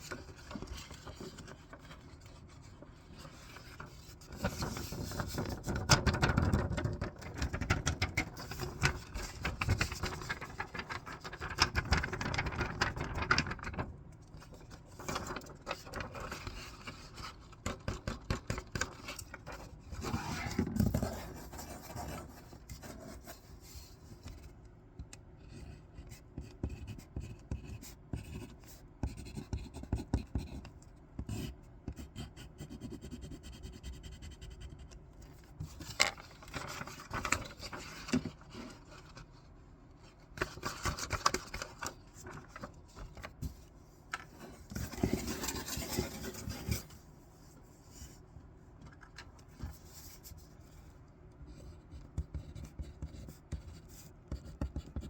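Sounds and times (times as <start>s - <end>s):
paper rustling: 0.0s - 22.5s, 35.7s - 39.4s, 44.3s - 47.0s.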